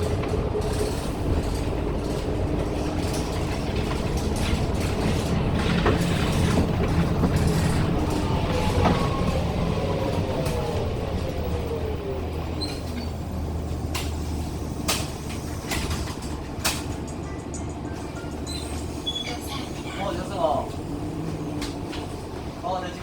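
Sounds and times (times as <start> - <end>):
bus body rattles and clicks: 0.0 - 23.0
bus engine running: 0.0 - 23.0.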